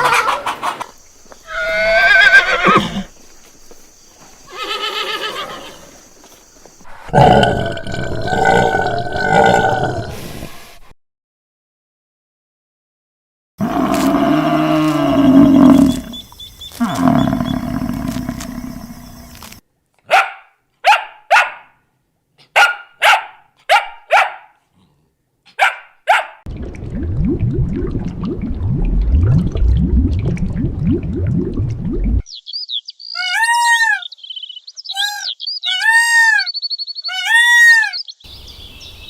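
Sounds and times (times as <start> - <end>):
low rough growl: 13.6 - 16.1
long low animal call: 13.6 - 19.4
dog barks: 20.0 - 21.8, 22.4 - 24.7, 25.5 - 26.4.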